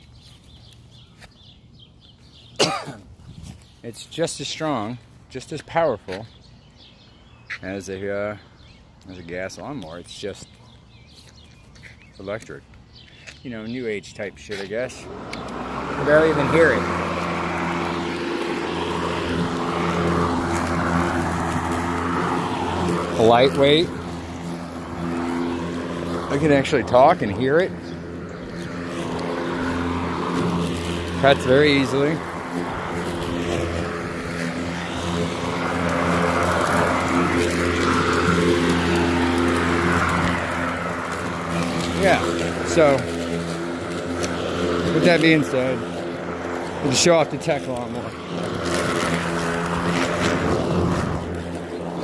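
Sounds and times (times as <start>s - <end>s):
blade cutting grass: 14.4s - 52.0s
electric lawn mower running: 14.8s - 52.0s.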